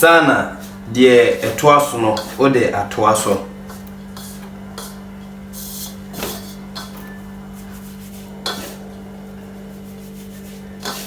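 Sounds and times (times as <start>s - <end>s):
steady low hum: 0.0s - 11.0s
scrapes and knocks against bowl: 5.6s - 9.1s, 9.7s - 11.0s.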